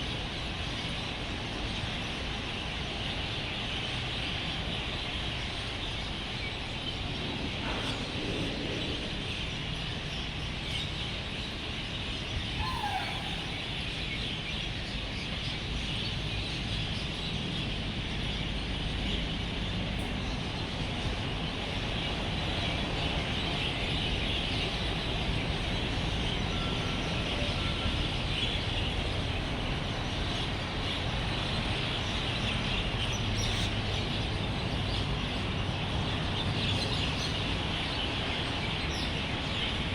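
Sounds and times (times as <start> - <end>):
road traffic rumble: 0.0 - 39.9
birds chirping in chorus: 12.3 - 16.9
short falling bird call: 12.6 - 13.9.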